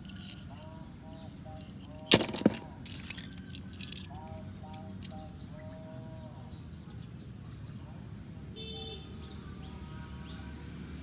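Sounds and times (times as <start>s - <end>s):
sharp knocks: 2.1s - 3.2s.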